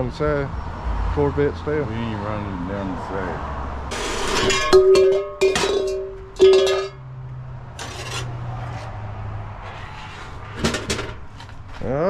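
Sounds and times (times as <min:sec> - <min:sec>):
metal clanking on metal: 0:03.9 - 0:07.1, 0:07.8 - 0:08.4, 0:10.6 - 0:11.6.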